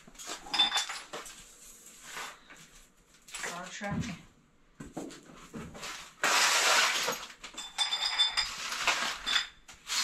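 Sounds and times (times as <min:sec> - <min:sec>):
small objects clinking and clattering: 0:00.1 - 0:02.4, 0:05.8 - 0:10.0.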